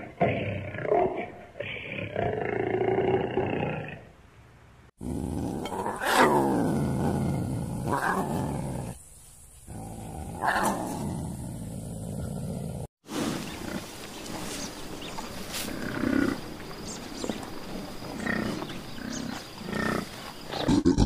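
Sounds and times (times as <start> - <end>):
big cats growling and snarling: 0.0 - 4.1, 5.0 - 9.0, 9.7 - 21.0.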